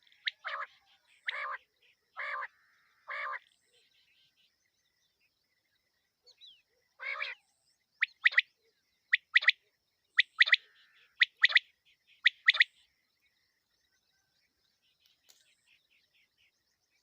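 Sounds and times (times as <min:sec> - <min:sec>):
quail calling: 0:00.0 - 0:01.6, 0:02.2 - 0:03.5, 0:07.0 - 0:07.4, 0:08.0 - 0:08.5, 0:09.1 - 0:09.6, 0:10.2 - 0:12.7.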